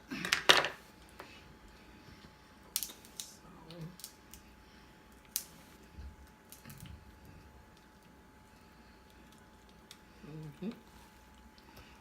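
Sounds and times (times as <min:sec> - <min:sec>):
crab shells cracking: 0:02.7 - 0:04.5, 0:05.1 - 0:05.5, 0:06.2 - 0:07.0.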